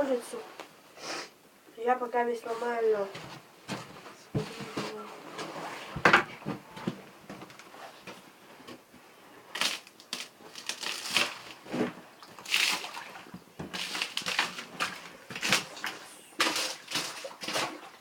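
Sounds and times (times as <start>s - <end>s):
ice crunching and cracking: 9.5s - 11.6s, 12.4s - 13.0s, 13.7s - 17.8s.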